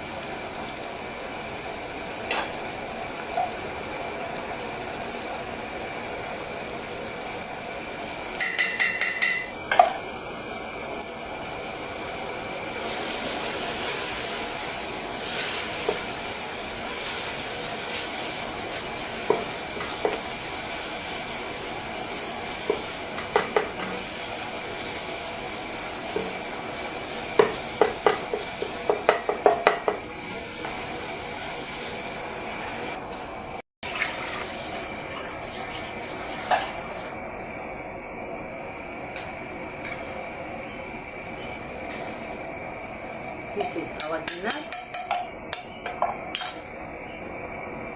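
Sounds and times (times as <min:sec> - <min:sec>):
vegetables sizzling in a pot: 0:00.0 - 0:47.9
spoon knocking against pot: 0:08.4 - 0:10.0, 0:22.7 - 0:23.9, 0:27.4 - 0:30.0, 0:43.6 - 0:46.6.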